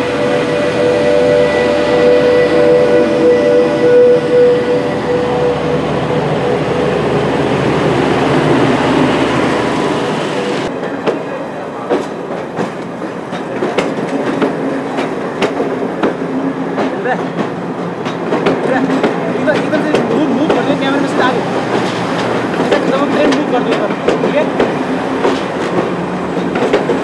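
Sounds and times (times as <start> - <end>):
diesel locomotive engine whine: 0.0 - 13.3
wheels clacking over rail joints: 10.3 - 27.0.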